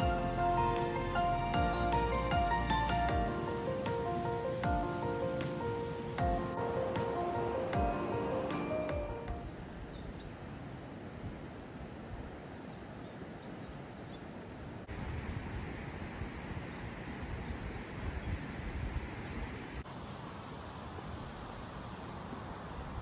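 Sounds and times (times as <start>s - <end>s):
steady outdoor noise: 0.0s - 23.0s.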